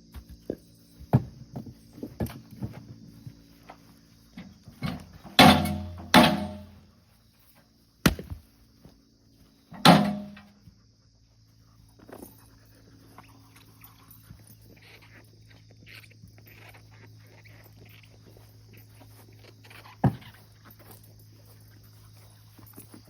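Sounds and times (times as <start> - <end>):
ringing crack of wood: 4.8 - 6.7, 9.8 - 10.5.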